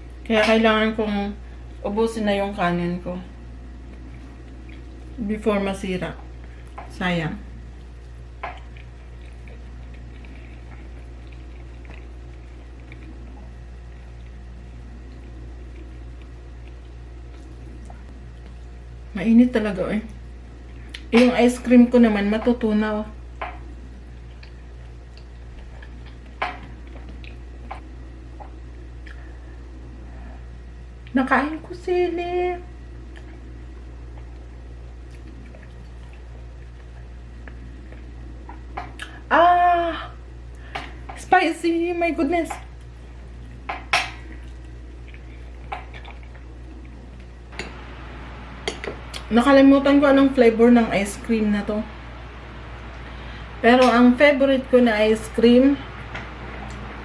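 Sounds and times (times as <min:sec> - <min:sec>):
low hum: 0:00.0 - 0:57.0
soft eating clicks: 0:03.8 - 0:05.2, 0:07.8 - 0:18.8, 0:23.3 - 0:29.3, 0:42.5 - 0:47.8
chewing clicks and smacks: 0:08.4 - 0:13.5, 0:24.2 - 0:29.2.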